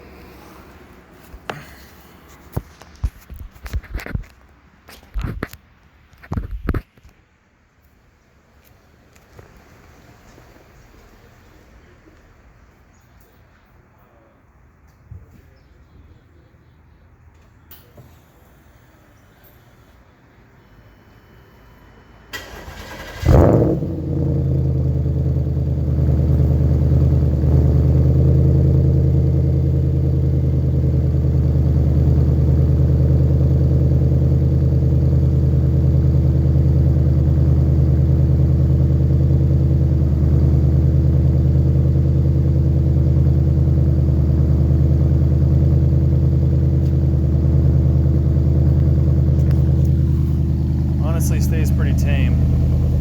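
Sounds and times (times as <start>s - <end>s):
car engine revving and idling: 21.8s - 53.0s.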